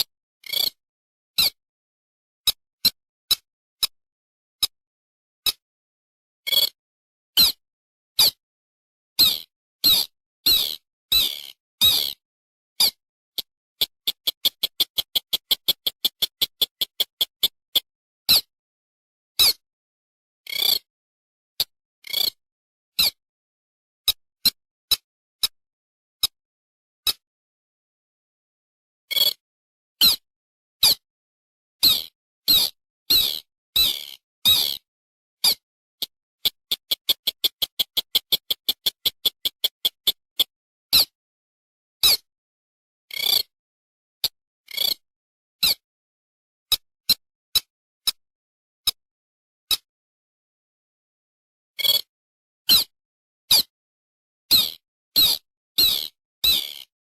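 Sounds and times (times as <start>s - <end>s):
recorded bird call: 9.2s - 12.2s, 12.8s - 18.5s, 31.8s - 34.8s, 35.5s - 41.1s, 54.5s - 56.9s
bird longer calls: 31.8s - 34.8s.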